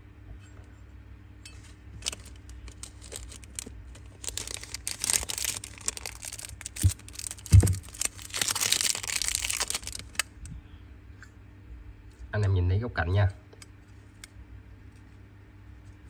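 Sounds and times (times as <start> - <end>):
wrapping crinkling and rustling: 1.6 - 10.4
soft low thumps: 6.2 - 8.0.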